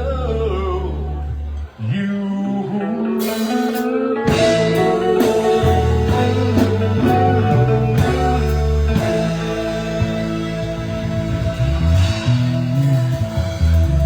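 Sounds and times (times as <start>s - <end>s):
bass guitar: 0.0s - 14.0s
electric guitar: 0.0s - 14.0s
live band playing: 3.2s - 14.0s.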